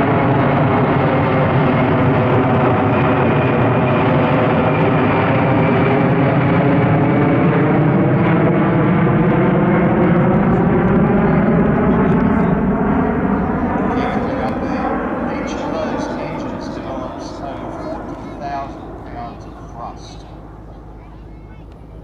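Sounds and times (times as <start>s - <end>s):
aircraft engine drone: 0.0s - 22.0s.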